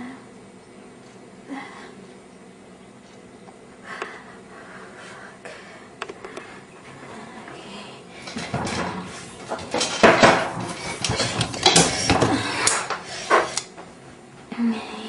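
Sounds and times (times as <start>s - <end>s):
hard objects clattering and knocking: 8.2s - 13.6s.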